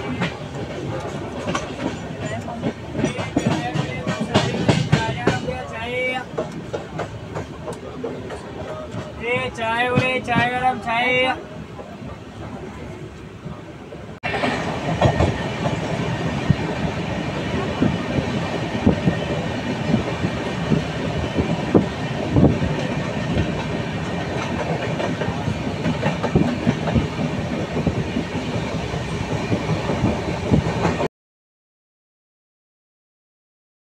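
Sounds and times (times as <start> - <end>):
train coaches rumbling: 0.0 - 31.1
wheels clicking over rail joints: 17.8 - 31.0.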